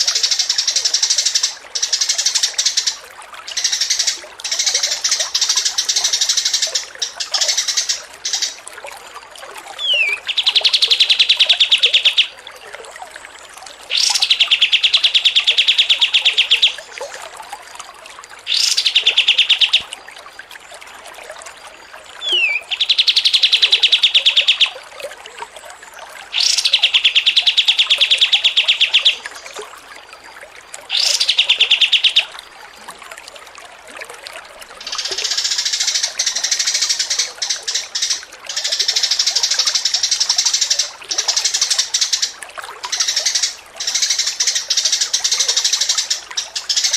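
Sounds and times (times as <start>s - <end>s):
songbird trilling: 0.0s - 8.6s, 9.8s - 12.4s, 13.9s - 16.9s, 18.5s - 19.9s, 22.2s - 24.8s, 26.3s - 29.5s, 30.9s - 32.3s, 34.8s - 46.9s.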